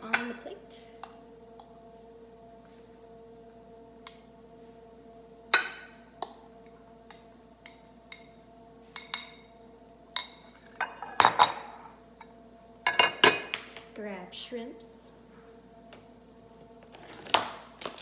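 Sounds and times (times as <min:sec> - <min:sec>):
spoon clinking against dishes: 0:09.0 - 0:09.5, 0:10.2 - 0:11.9, 0:12.9 - 0:13.6.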